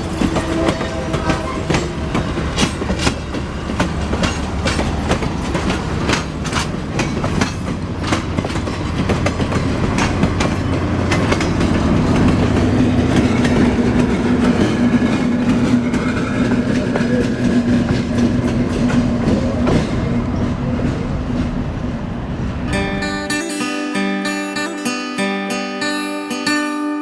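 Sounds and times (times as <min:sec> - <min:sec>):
train wheels clicking over rail joints: 0:00.0 - 0:22.7
train rumbling: 0:00.0 - 0:23.4.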